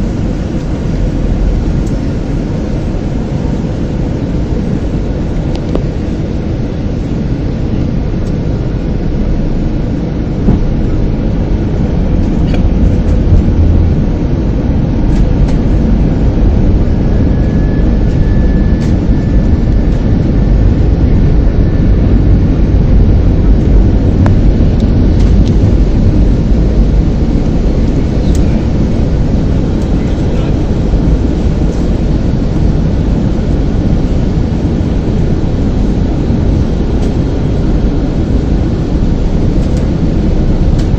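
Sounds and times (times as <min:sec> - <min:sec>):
jet engines and airflow rumble: 0:00.0 - 0:40.9.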